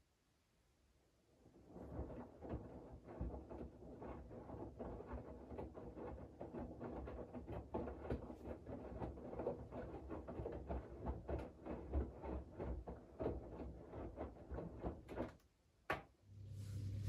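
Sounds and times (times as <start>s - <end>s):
laundry tumbling in washing machine: 1.4s - 15.4s, 16.3s - 17.0s
low hum of running water: 16.2s - 17.0s.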